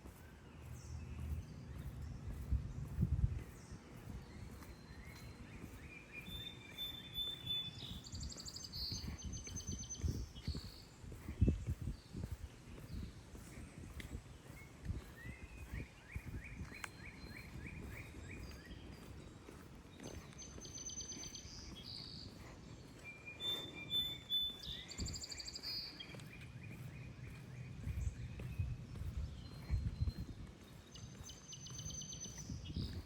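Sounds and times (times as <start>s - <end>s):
footsteps on pavement: 0.0s - 33.0s
songbirds trilling: 0.0s - 33.0s
short chirping calls: 3.4s - 10.9s, 20.3s - 33.0s.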